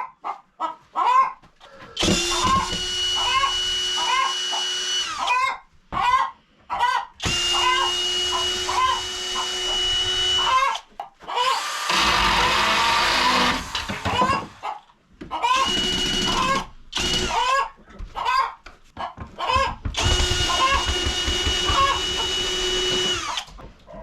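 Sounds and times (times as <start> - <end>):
chickens clucking: 0.0 - 2.6, 3.2 - 11.7, 13.8 - 15.6, 16.3 - 20.9
noisy mechanical whirr: 11.6 - 14.6.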